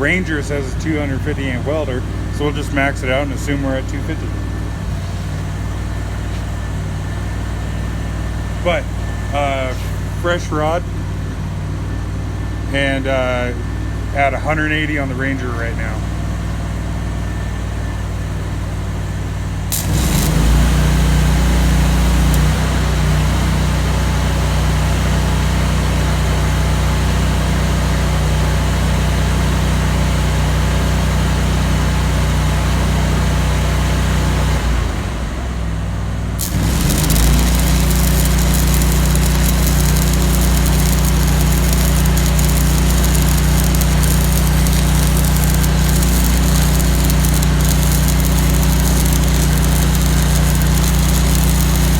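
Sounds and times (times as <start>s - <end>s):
welding arc crackling and hissing: 19.7s - 23.3s, 36.4s - 51.9s
welder engine running: 19.7s - 24.0s, 36.4s - 51.9s.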